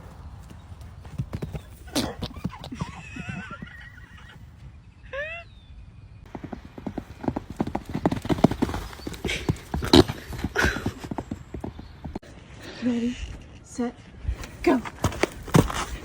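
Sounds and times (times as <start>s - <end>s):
horse hooves clopping: 0.0s - 4.7s, 6.2s - 12.2s, 14.4s - 16.0s.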